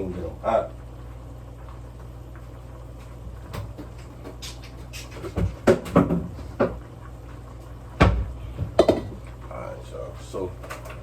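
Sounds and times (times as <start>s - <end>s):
steady low hum: 0.0s - 11.0s
kitchen knocks and clatters: 3.4s - 6.9s, 8.0s - 9.4s, 10.6s - 11.0s.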